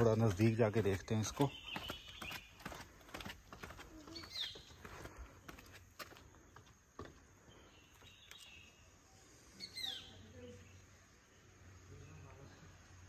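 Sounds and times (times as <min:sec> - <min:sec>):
bird chirps: 0:00.0 - 0:02.9, 0:04.0 - 0:05.6, 0:07.5 - 0:12.4
light footsteps: 0:00.0 - 0:07.4.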